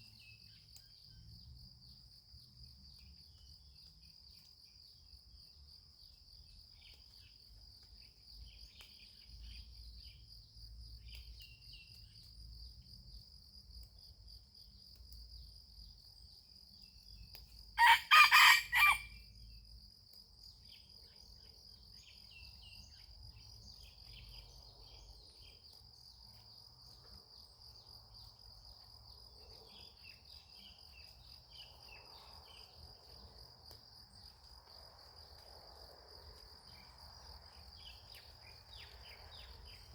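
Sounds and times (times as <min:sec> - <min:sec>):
insects droning: 0:00.0 - 0:39.9
rooster crowing: 0:17.8 - 0:19.1.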